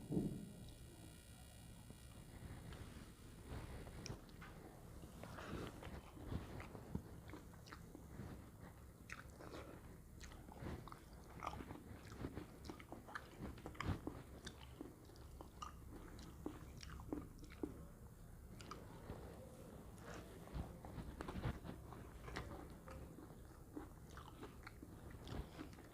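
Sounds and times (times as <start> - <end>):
low steady hum: 0.0 - 25.9
person chewing and biting: 5.2 - 19.2, 19.9 - 25.9.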